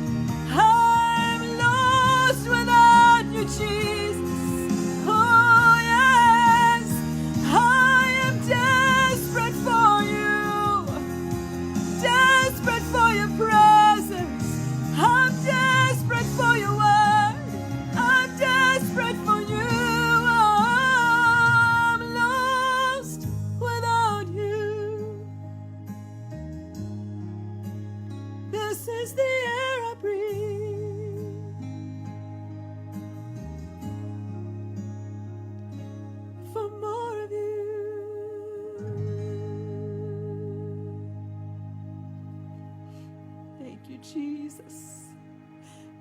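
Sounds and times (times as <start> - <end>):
instrumental accompaniment: 0.0 - 23.7
person singing with vibrato: 0.4 - 25.3.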